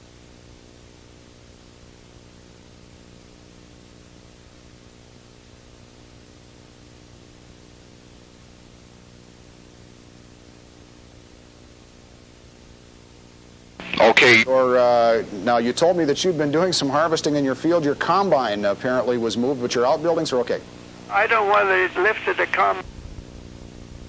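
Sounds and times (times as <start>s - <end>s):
low electrical hum: 0.0s - 24.0s
steady hiss: 13.8s - 22.8s.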